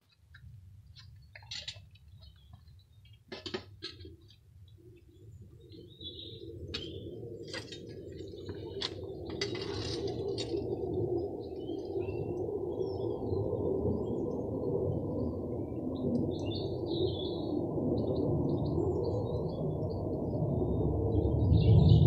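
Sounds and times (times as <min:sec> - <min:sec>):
small birds chirping: 0:00.8 - 0:03.3, 0:04.0 - 0:13.4, 0:15.7 - 0:19.9.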